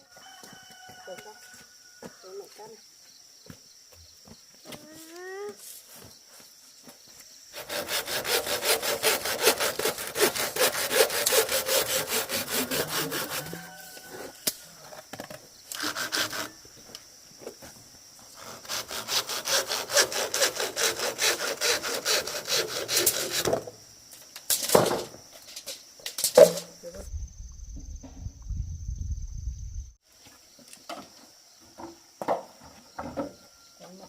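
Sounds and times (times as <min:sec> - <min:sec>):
hand saw cutting bamboo: 0:07.6 - 0:13.8, 0:15.7 - 0:16.6, 0:18.3 - 0:23.7.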